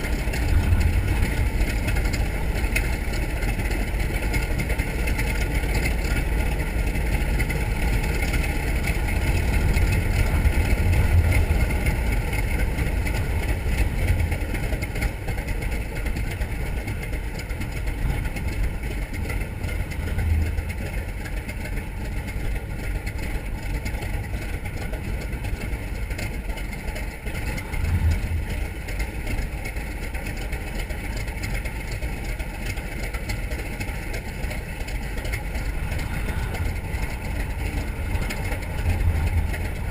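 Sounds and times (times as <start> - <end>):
radial aircraft engine rumbling: 0.0 - 39.9.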